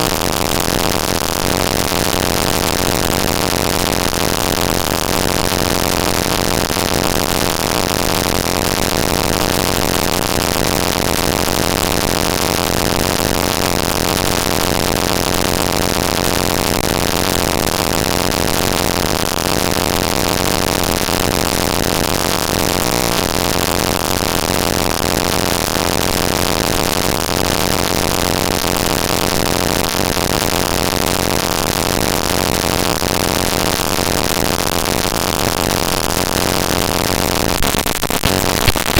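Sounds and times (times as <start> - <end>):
buzzing hiss: 36.8 - 38.9.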